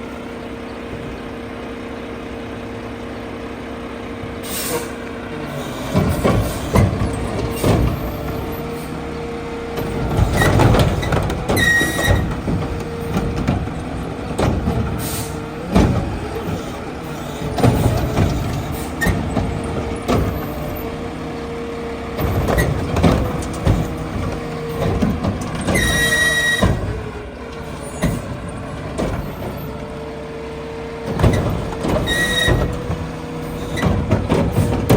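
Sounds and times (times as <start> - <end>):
diesel engine running with whine: 0.0 - 34.9
loud bangs and clanks: 5.6 - 21.2, 22.1 - 29.8, 31.0 - 34.9.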